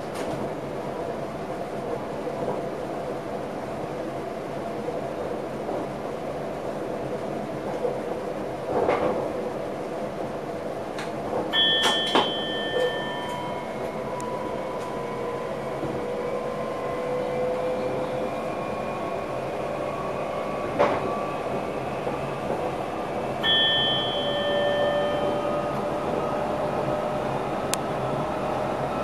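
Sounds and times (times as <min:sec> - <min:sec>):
short high electronic tone: 0:23.4 - 0:25.4.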